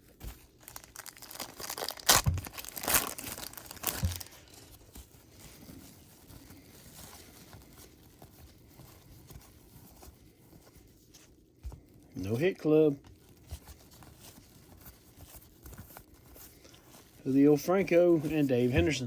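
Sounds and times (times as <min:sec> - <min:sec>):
wrapper tearing and crinkling: 0:00.0 - 0:04.9
cards rustling: 0:00.0 - 0:19.0.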